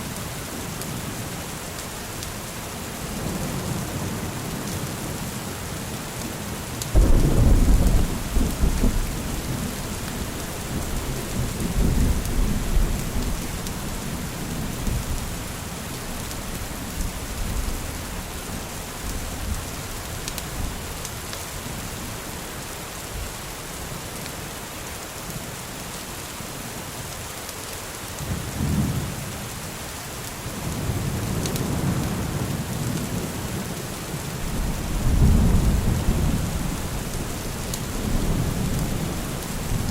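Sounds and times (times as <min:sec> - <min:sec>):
steady rain: 0:00.0 - 0:39.9
thunder rumbling: 0:07.0 - 0:15.3, 0:34.4 - 0:39.9.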